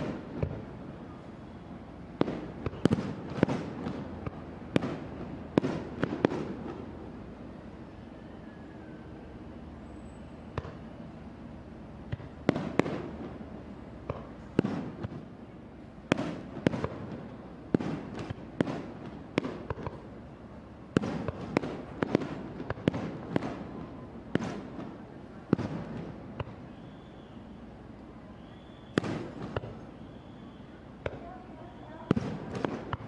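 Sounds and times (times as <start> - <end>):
fireworks booming: 0.0 - 0.7, 2.2 - 6.8, 12.1 - 13.4, 14.0 - 15.3, 16.1 - 20.1, 20.9 - 27.1, 28.4 - 30.4, 31.0 - 33.0
crowd noise: 0.0 - 33.0.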